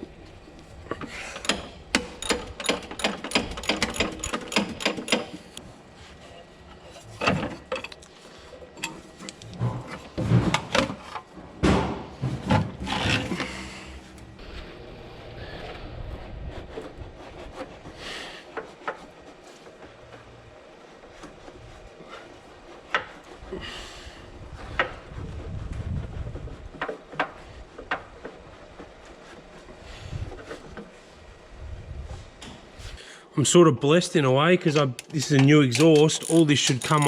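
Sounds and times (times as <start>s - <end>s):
metal tools clunking and scraping: 0.8s - 5.6s, 6.2s - 14.3s, 34.6s - 37.0s
ratchet wrench clicking: 1.4s - 5.4s, 35.7s - 37.0s.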